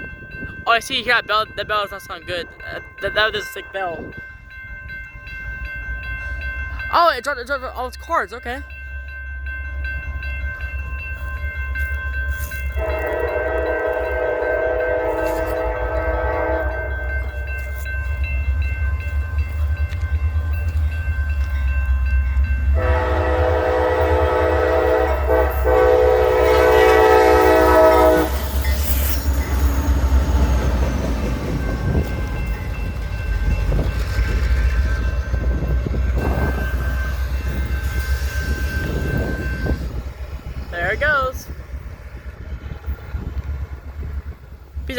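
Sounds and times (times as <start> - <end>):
diesel train rumble: 0.0 - 44.9
train horn: 12.8 - 17.4, 22.8 - 28.5.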